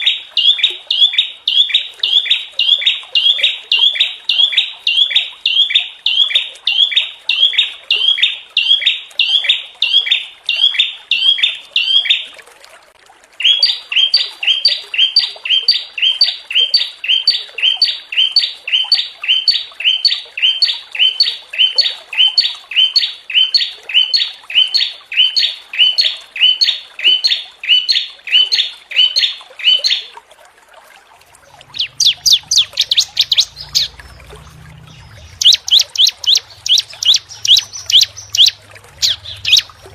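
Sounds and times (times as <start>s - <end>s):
bird trill: 0.0s - 12.2s, 13.4s - 30.1s, 31.7s - 39.9s
songbird harsh calls: 13.4s - 30.0s, 31.7s - 39.9s
low rumble: 33.4s - 35.5s.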